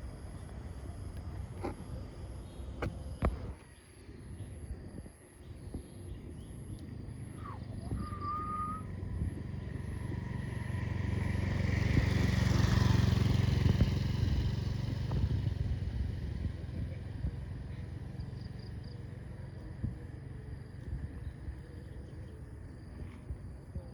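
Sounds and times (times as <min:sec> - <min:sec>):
vehicle engine passing by: 0:06.9 - 0:23.8.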